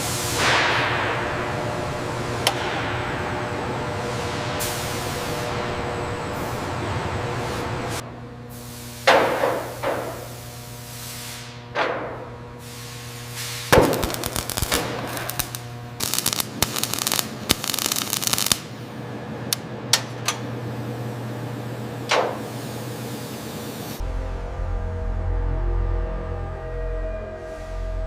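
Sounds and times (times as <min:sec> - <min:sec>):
steady low hum: 0:00.0 - 0:28.0
rapid crackling and rattling: 0:13.8 - 0:18.7.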